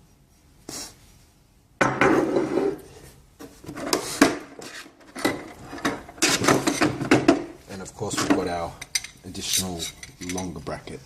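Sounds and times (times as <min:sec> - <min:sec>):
metal brackets clinking and rattling: 0:05.1 - 0:10.7.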